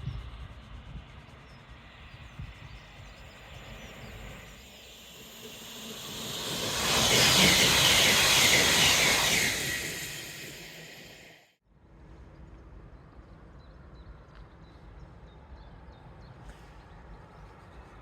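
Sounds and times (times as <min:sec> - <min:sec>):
train passing at speed: 0:00.0 - 0:11.6.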